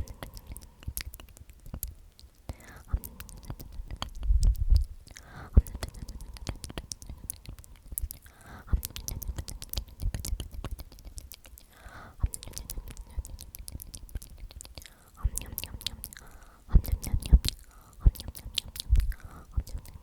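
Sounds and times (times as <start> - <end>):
person whispering: 0.0 - 20.0
wet mouth clicks: 0.0 - 20.0.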